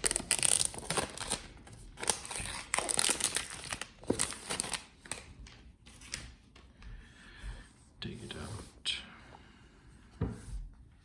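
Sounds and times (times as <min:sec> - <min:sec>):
packaging tearing and crinkling: 0:00.0 - 0:05.3.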